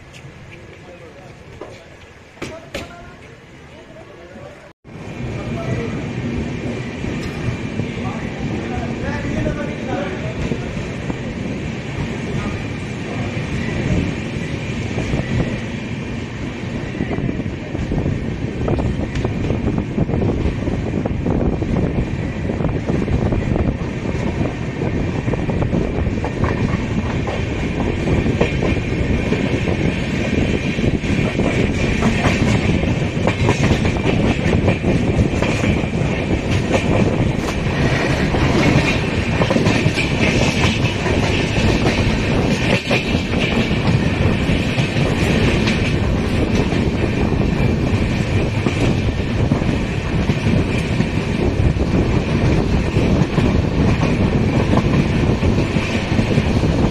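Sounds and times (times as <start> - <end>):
train wheels clattering over rails: 22.2 - 56.9.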